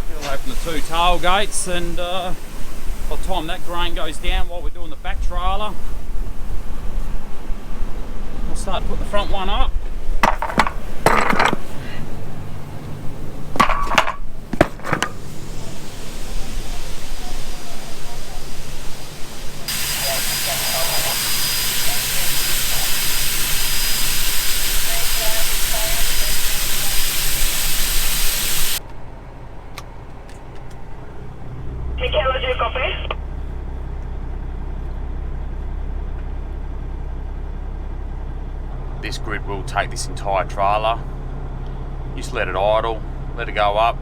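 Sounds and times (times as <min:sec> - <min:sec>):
low engine hum: 0:00.0 - 0:26.8, 0:28.7 - 0:44.0
metal clanks of tailgate latches: 0:13.6 - 0:15.4
loud rushing hiss: 0:14.7 - 0:28.8.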